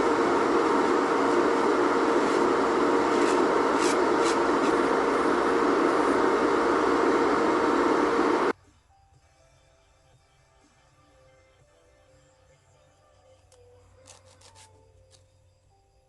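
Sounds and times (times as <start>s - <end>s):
electric nail machine humming: 0.0s - 8.5s.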